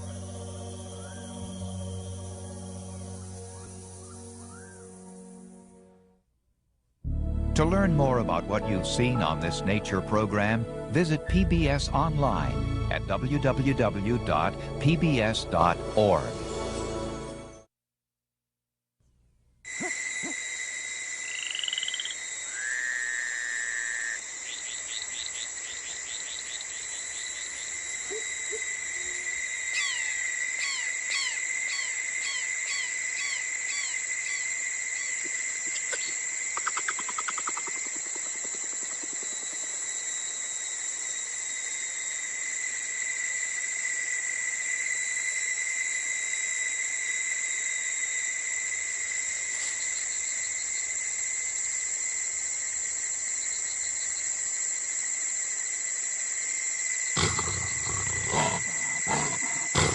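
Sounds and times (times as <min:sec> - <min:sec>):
high-pitched insect trilling: 0:00.0 - 0:05.3, 0:19.7 - 0:59.9
frogs chirping: 0:00.0 - 0:05.6, 0:19.7 - 0:59.9
pulsed frog croak: 0:21.2 - 0:26.9, 0:35.0 - 0:39.8, 0:57.0 - 0:59.9.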